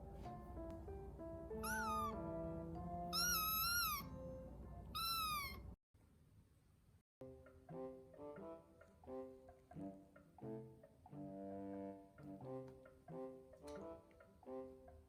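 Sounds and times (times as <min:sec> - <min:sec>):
background music: 0:00.0 - 0:05.0, 0:07.2 - 0:15.0
kitten meowing: 0:01.6 - 0:02.3, 0:03.1 - 0:04.3, 0:04.9 - 0:05.7.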